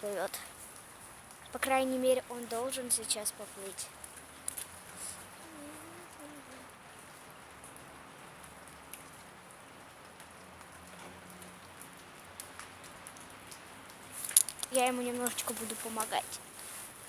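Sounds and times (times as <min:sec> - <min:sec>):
water drips: 0:00.0 - 0:17.0
water pattering: 0:00.0 - 0:17.0.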